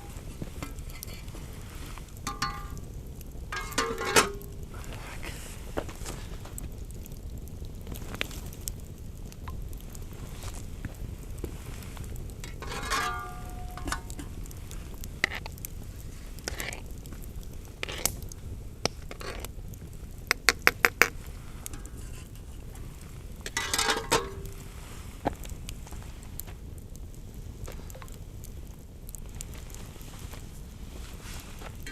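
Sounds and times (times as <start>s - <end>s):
metal utensil tapping a pot: 2.3s - 2.8s, 3.6s - 4.5s, 12.5s - 14.3s, 23.5s - 24.5s.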